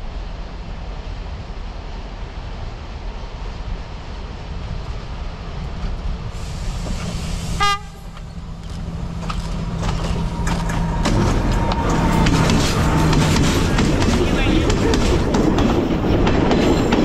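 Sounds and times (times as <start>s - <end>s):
diesel train engine: 0.0s - 17.0s
train horn toot: 7.6s - 8.2s
wheels clattering on rails: 8.1s - 17.0s.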